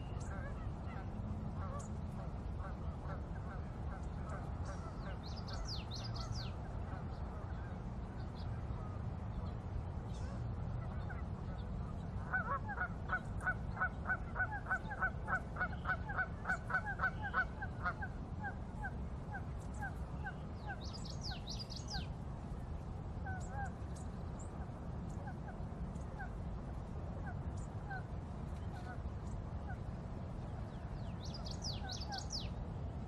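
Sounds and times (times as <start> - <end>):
low background noise: 0.0 - 33.0
birds calling: 2.6 - 7.7, 30.8 - 32.6.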